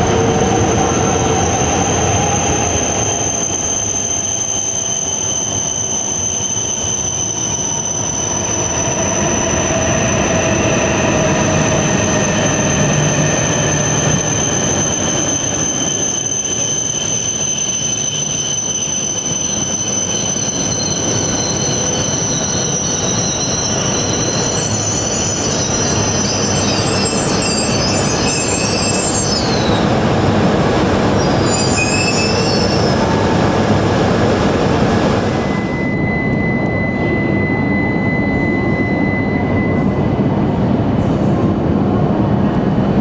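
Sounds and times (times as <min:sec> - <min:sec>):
train rumble: 0:00.0 - 0:43.0
train running noise: 0:00.0 - 0:43.0
brake and wheel squeal: 0:01.0 - 0:29.9, 0:31.1 - 0:33.2, 0:35.4 - 0:40.2
faint high tone: 0:35.4 - 0:40.3.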